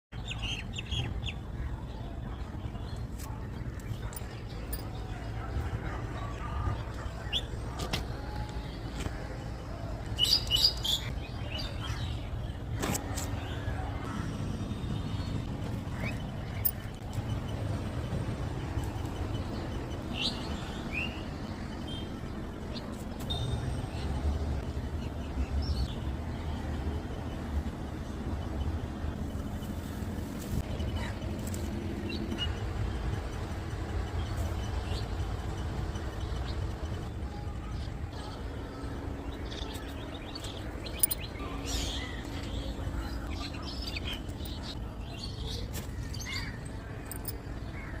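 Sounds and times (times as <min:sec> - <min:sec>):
small birds chirping: 0:00.1 - 0:48.0.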